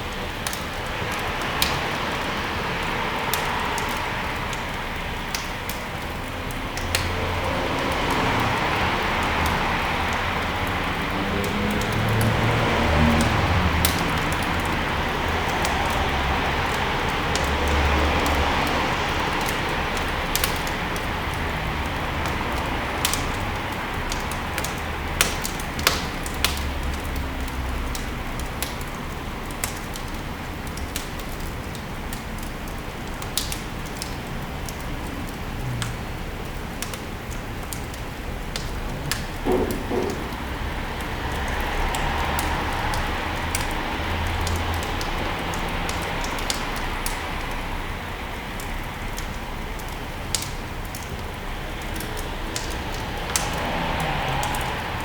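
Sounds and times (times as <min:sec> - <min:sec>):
fire crackling and popping: 0:00.0 - 0:55.0
wood fire hissing: 0:51.4 - 0:55.0.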